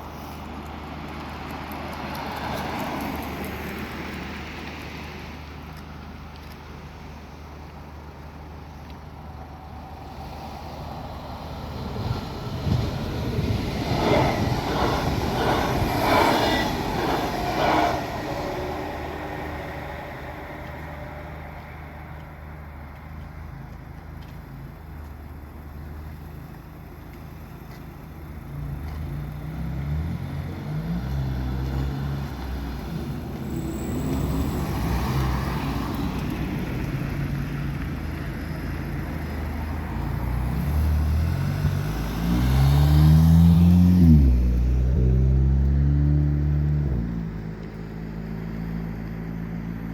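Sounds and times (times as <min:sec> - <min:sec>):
vehicle engine rising: 0:08.1 - 0:23.2
vehicle passing loudly: 0:10.1 - 0:22.0, 0:39.9 - 0:47.3.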